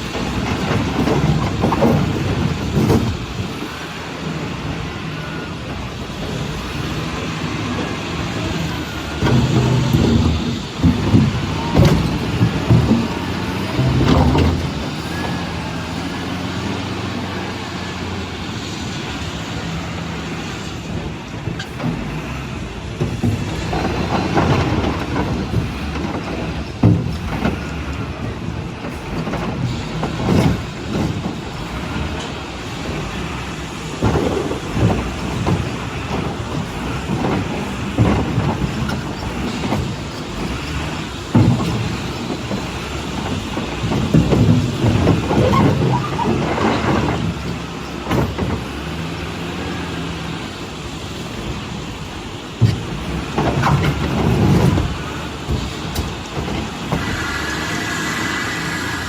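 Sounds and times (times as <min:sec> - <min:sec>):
diesel truck engine running: 0:00.0 - 0:59.0
heavy knocks and thuds: 0:09.2 - 0:15.6, 0:23.0 - 0:31.4.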